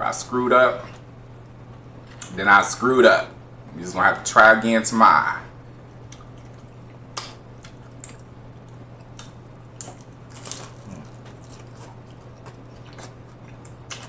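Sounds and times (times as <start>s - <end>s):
crunching taco shell: 6.1s - 14.0s.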